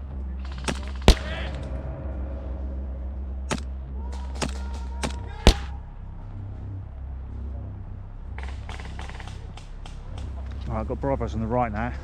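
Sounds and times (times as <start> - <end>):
airsoft guns firing: 0.7 - 1.5, 4.4 - 5.7.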